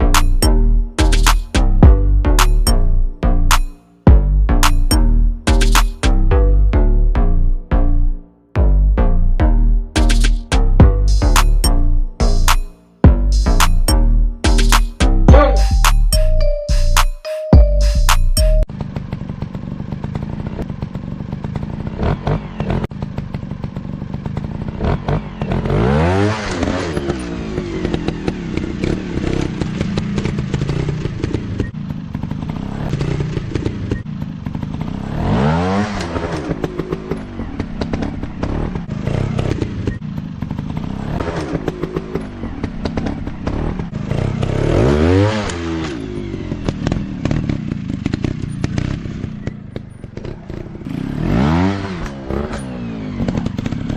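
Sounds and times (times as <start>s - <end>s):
engine clattering and crackling: 18.6s - 53.9s
dirt bike engine revving: 18.8s - 53.9s.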